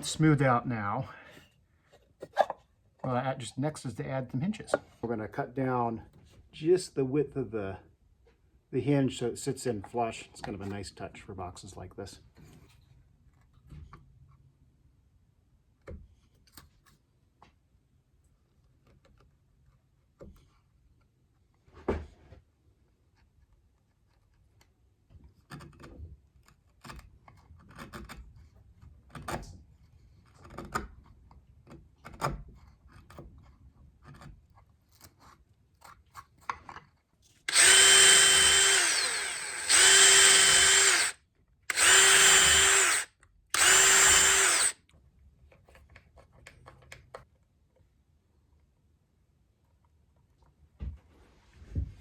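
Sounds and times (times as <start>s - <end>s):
power drill running: 37.5s - 44.8s.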